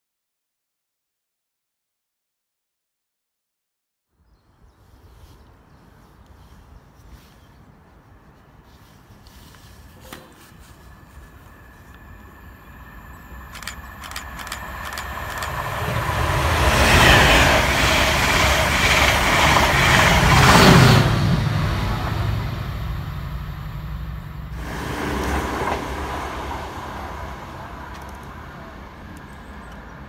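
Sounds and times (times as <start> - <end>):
diesel locomotive engine passing: 9.2 - 30.0
train wheels rumbling on rails: 9.2 - 30.0.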